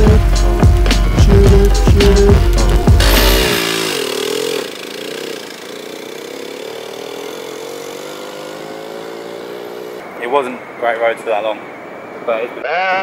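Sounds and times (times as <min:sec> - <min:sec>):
small motorbike engine running: 0:00.0 - 0:10.0
wind and road noise: 0:00.0 - 0:13.0.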